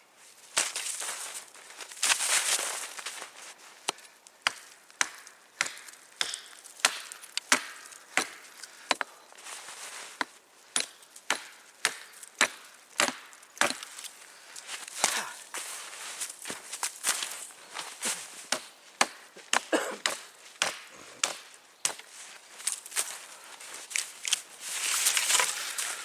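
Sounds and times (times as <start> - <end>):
blade chopping firewood: 3.8 - 9.2, 10.2 - 14.0, 18.5 - 22.1.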